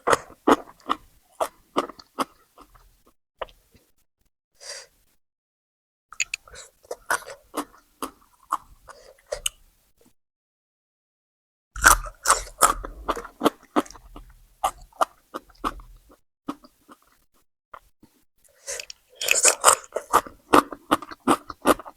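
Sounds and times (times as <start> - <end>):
person chewing crunchy food: 0.0 - 3.6, 6.2 - 9.4, 11.8 - 17.2, 18.6 - 21.9.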